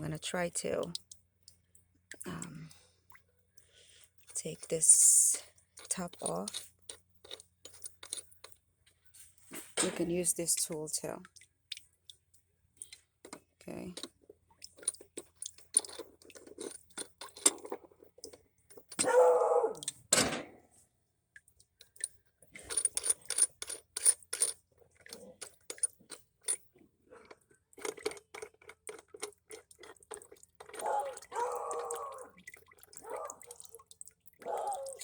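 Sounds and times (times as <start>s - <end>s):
metal clicks and scrapes: 5.7s - 8.6s, 12.8s - 19.2s, 21.8s - 31.0s.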